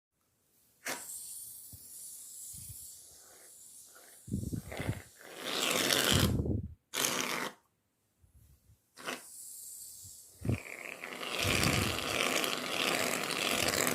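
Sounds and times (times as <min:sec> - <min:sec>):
aerosol can hissing: 0:00.8 - 0:06.4, 0:09.0 - 0:13.9.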